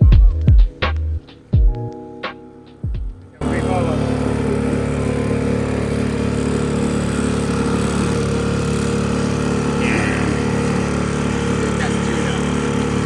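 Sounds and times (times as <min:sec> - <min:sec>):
boat engine droning: 0:03.4 - 0:13.0.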